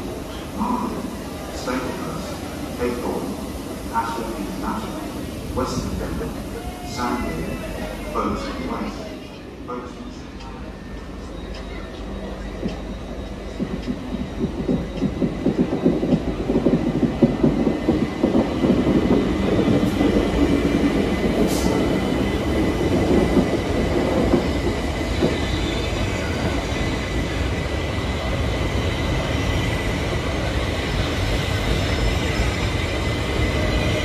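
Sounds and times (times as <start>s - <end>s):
train wheels clattering: 11.5s - 27.4s.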